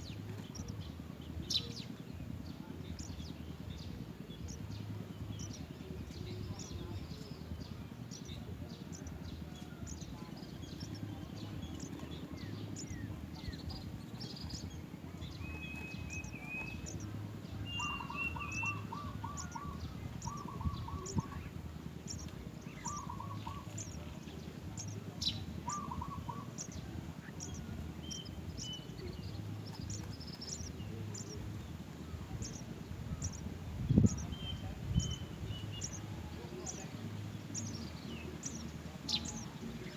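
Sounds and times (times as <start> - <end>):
low background rumble: 0.0 - 39.9
small birds chirping: 0.0 - 39.9
bird whistles: 17.6 - 19.6.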